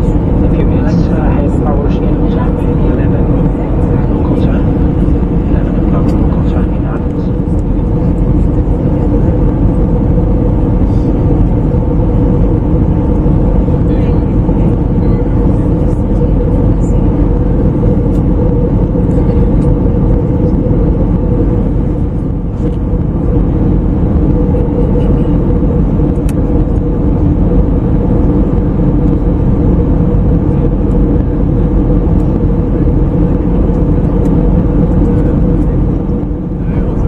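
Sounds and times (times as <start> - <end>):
airplane cabin engine drone: 0.0 - 37.0
steady hum: 0.0 - 37.0.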